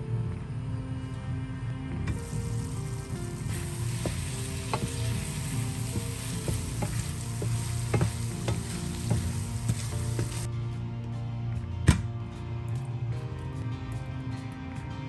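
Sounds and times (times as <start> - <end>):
meat sizzling in a frying pan: 2.1 - 10.5
wooden spatula scraping pan: 3.5 - 10.5.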